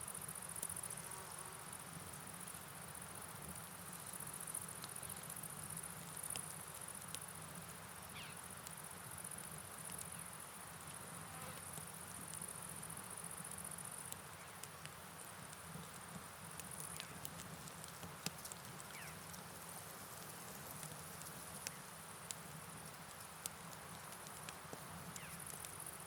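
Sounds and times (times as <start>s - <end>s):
rain hiss: 0.0s - 26.0s
crickets chirring: 16.4s - 22.0s, 23.8s - 26.0s.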